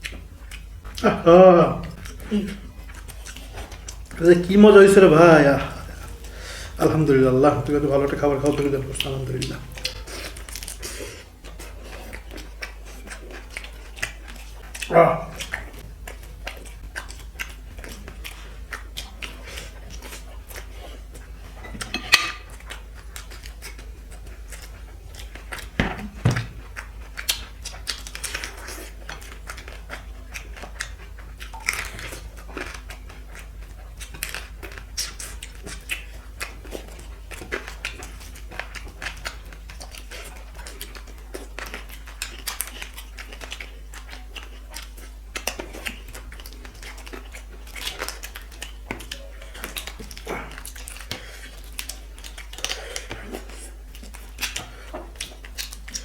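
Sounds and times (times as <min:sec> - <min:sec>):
person chewing food: 0:00.0 - 0:56.0
plate clinking: 0:21.6 - 0:22.5.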